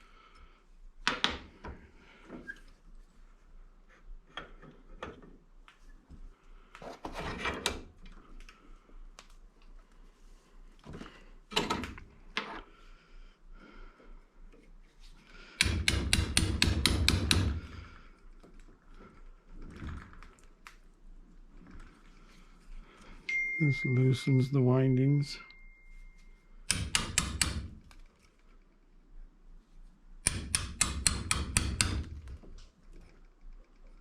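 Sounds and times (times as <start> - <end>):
rapid sharp hammer strikes: 15.6 - 17.6, 26.7 - 27.7, 30.2 - 32.1.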